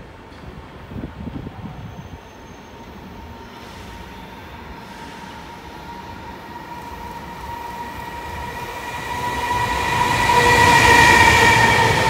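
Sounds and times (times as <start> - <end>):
freight train approaching: 0.0 - 12.0
locomotive whine: 2.8 - 12.0.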